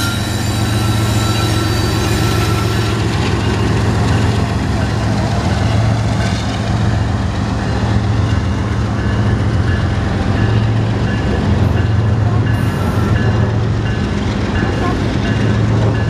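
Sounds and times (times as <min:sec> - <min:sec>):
diesel locomotive engine drone: 0:00.0 - 0:16.0.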